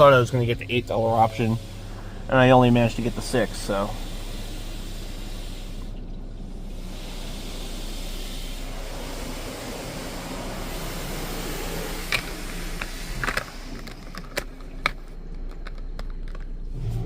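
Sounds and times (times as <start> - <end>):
rinse spray hissing against car: 0.0 - 15.1.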